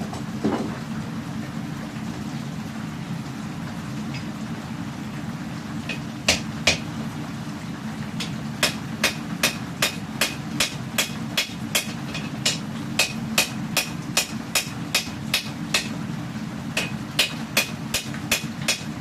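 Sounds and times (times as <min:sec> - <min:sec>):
hammer striking hot steel: 0:08.2 - 0:16.0, 0:16.8 - 0:18.9.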